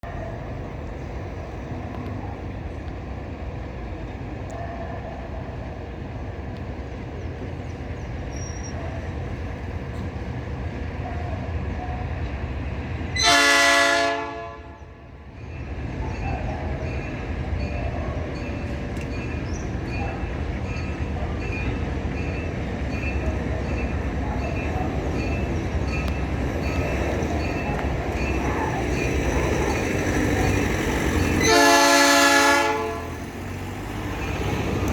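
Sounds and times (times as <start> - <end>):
diesel engines rumbling: 0.0 - 34.9
locomotive horn blast: 13.1 - 15.0, 27.6 - 33.3.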